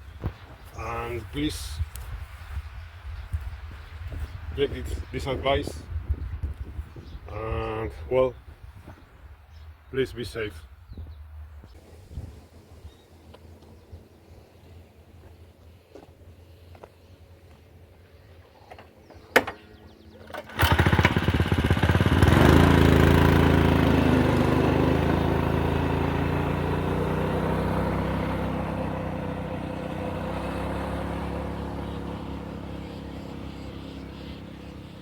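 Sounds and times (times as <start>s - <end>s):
small motorcycle engine revving: 19.3s - 35.0s.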